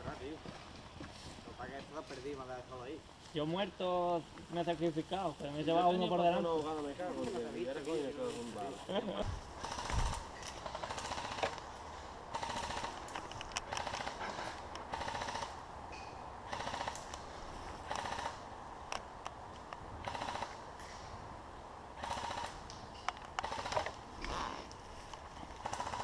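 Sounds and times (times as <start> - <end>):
airsoft guns firing bursts: 9.6 - 11.6, 12.3 - 13.0, 13.6 - 14.3, 14.9 - 15.6, 16.5 - 17.0, 17.8 - 18.4, 20.0 - 20.6, 22.0 - 22.6, 23.4 - 24.0, 25.6 - 26.0.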